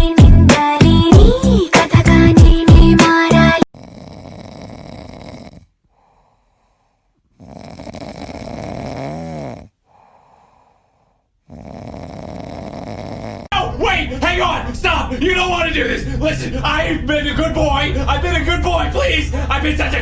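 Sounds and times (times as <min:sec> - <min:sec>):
loud music: 0:00.0 - 0:03.6
person snoring: 0:03.6 - 0:13.5.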